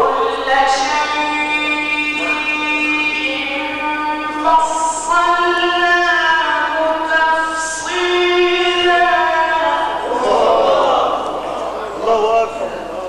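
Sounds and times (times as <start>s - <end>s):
man chanting melismatic recitation: 0.0s - 13.0s.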